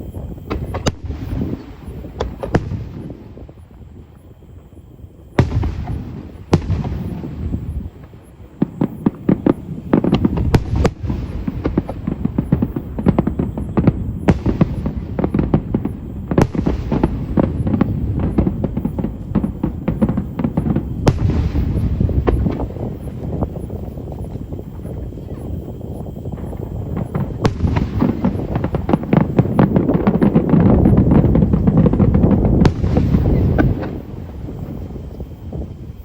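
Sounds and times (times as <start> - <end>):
rapid firework crackling: 0.0 - 36.0
firework shell bursts booming: 26.4 - 34.7.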